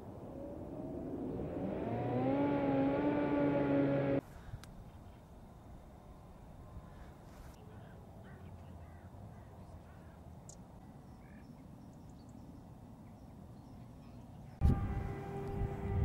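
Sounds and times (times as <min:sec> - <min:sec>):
low steady rumble: 0:00.0 - 0:04.2, 0:14.6 - 0:16.0
distant bird calls: 0:00.0 - 0:05.5, 0:06.8 - 0:14.6.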